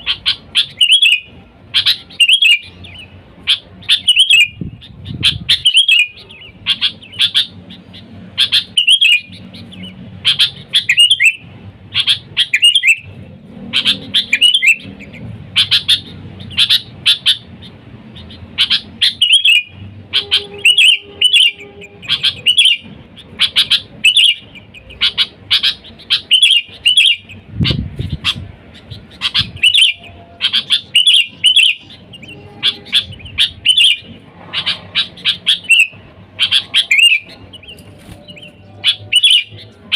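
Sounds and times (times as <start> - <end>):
bulbul chirping: 0.0 - 39.9.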